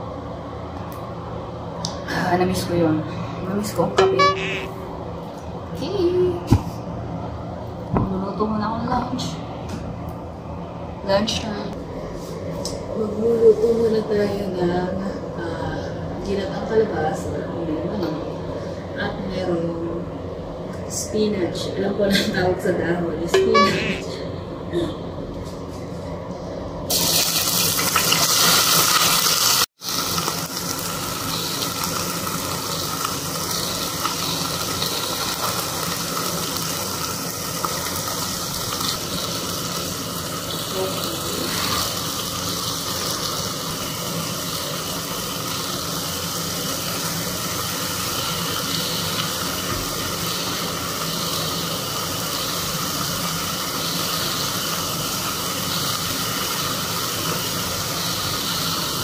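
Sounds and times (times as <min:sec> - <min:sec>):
chicken sizzling in a pot: 0:26.9 - 0:59.0.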